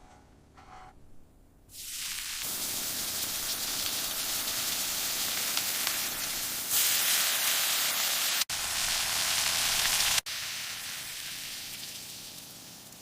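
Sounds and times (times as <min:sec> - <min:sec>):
steady hissing noise: 0:01.7 - 0:07.0.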